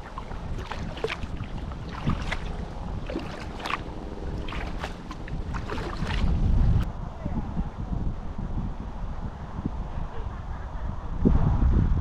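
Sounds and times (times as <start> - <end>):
water dripping: 0.0 - 6.4
kayak paddle splashes: 0.0 - 6.6
low steady rumble: 0.0 - 12.0.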